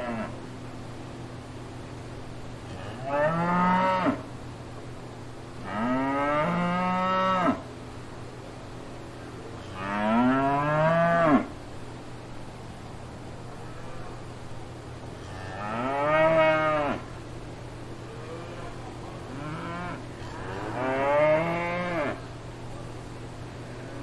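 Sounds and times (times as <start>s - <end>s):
cow mooing: 15.3s - 17.1s, 19.3s - 22.2s.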